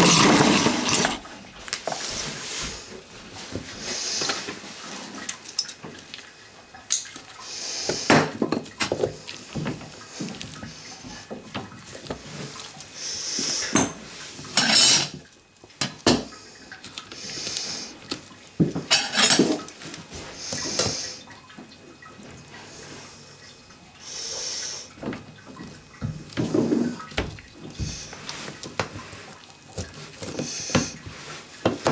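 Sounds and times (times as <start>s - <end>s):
metal tools clinking and knocking: 14.6s - 15.1s.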